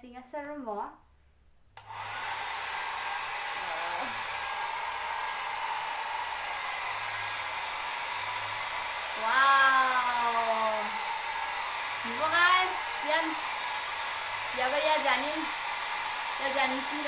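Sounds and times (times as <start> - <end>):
hair dryer running: 1.8 - 17.0
woman exclaiming: 9.2 - 10.9.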